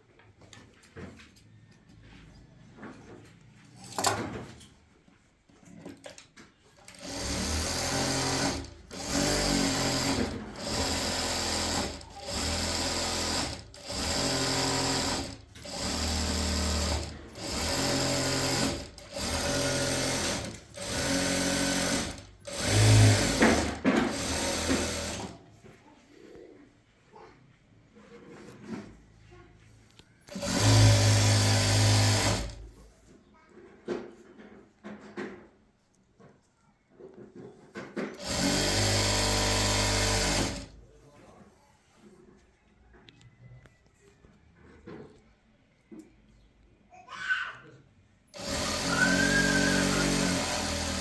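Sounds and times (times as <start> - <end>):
small electric motor running: 7.1 - 25.3, 30.3 - 32.6, 38.2 - 40.7, 48.4 - 51.0.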